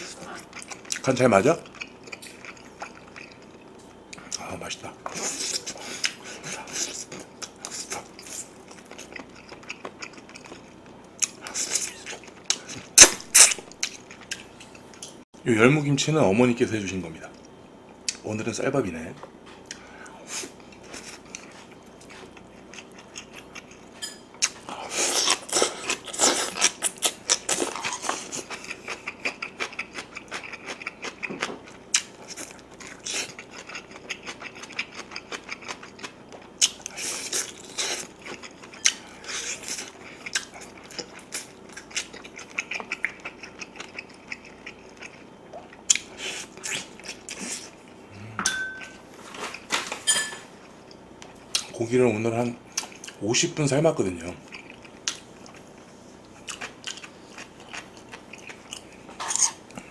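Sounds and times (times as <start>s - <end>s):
chewing and gnawing on bones: 0.0s - 4.5s, 5.1s - 15.2s, 20.5s - 48.0s, 54.4s - 59.9s.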